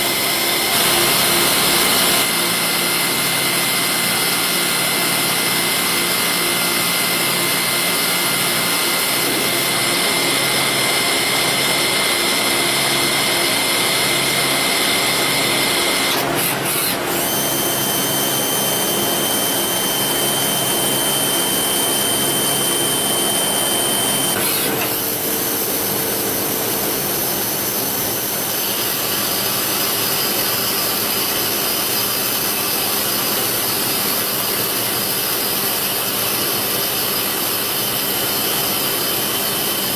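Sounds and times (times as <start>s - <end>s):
lathe machining whine: 0.0s - 39.9s.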